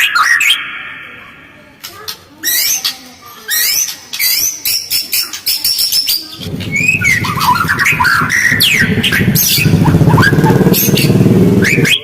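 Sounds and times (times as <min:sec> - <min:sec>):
bird singing whistled phrases: 0:03.5 - 0:12.0
low rapidly pulsing sound: 0:06.4 - 0:12.0.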